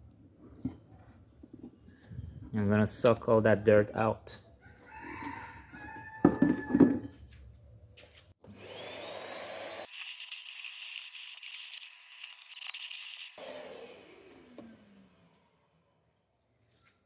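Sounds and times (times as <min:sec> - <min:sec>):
small vacuum cleaner whining: 0:08.4 - 0:16.0.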